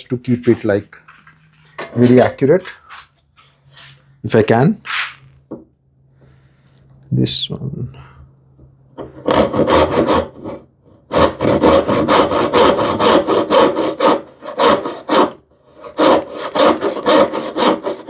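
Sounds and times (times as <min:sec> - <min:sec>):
hand saw cutting wood: 0:09.0 - 0:18.0.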